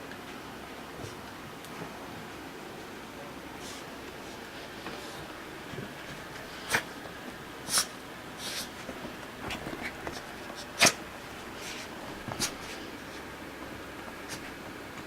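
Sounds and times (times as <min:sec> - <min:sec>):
animals scuffling: 0:00.8 - 0:15.0
animal snorts: 0:06.5 - 0:06.9, 0:07.6 - 0:08.8.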